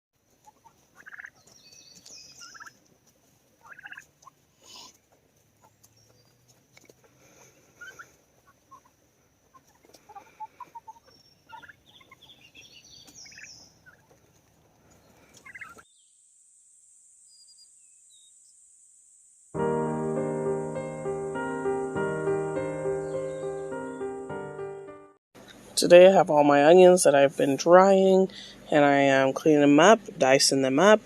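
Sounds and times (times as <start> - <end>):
poultry calling and gobbling: 0.3 - 15.9.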